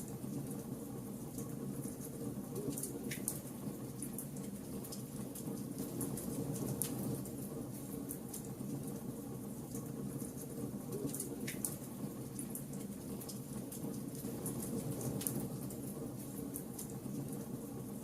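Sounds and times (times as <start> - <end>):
wood fire burning: 1.3 - 18.0.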